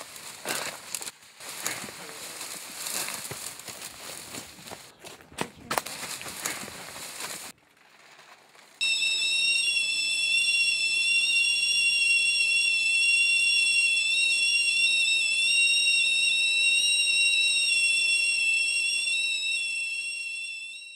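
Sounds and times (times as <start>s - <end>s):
tea kettle whistle: 8.8s - 20.9s.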